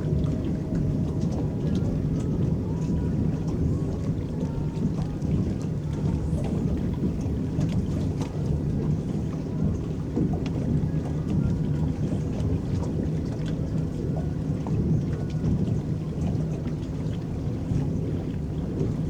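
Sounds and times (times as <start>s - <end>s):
faint motor hum: 0.0s - 19.0s
water rumbling against hull: 0.0s - 19.0s.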